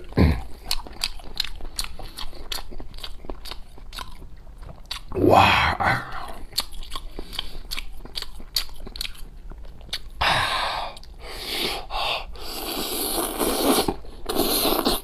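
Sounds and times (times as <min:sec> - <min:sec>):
rough chewing: 0:00.0 - 0:05.2.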